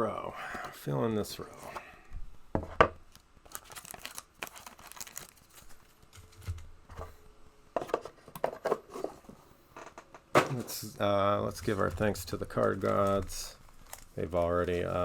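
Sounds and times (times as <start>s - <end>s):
card pack wrappers tearing: 3.1s - 5.8s, 11.6s - 15.0s.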